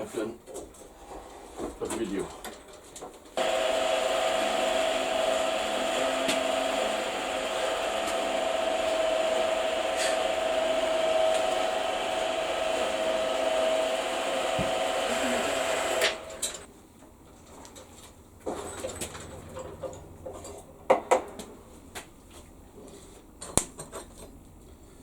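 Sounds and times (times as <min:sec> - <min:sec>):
electric motor whirring hum: 0:03.4 - 0:16.7.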